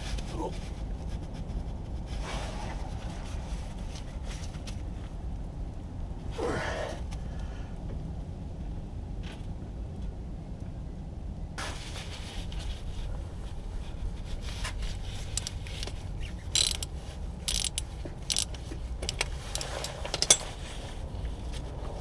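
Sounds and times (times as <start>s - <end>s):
ratchet clatter: 15.1s - 20.7s
metal hand tools clicking and scraping: 15.2s - 20.8s.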